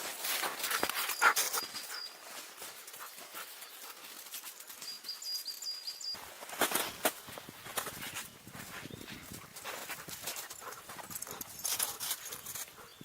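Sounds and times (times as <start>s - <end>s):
footsteps crunching in snow: 0.0s - 5.2s, 6.2s - 12.8s.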